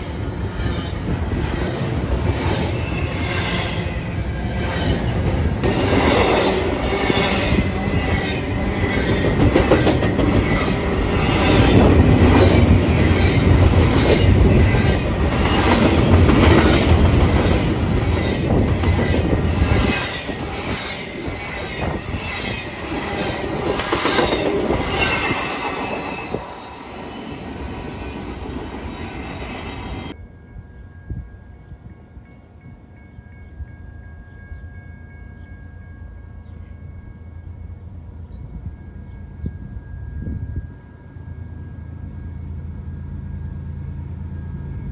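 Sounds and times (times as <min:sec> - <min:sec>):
train wheels clacking over rails: 0:04.6 - 0:26.6.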